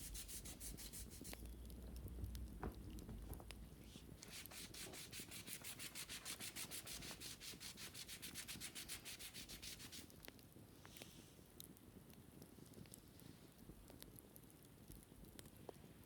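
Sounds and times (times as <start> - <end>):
scratching on a wicker basket: 0.0 - 10.1.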